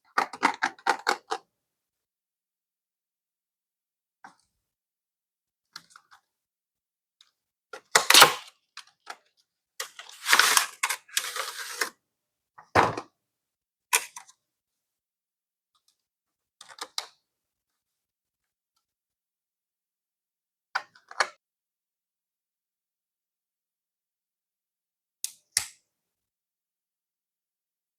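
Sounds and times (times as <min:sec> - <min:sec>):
packaging rustling: 0:09.8 - 0:11.9
object set down knock: 0:12.7 - 0:13.1.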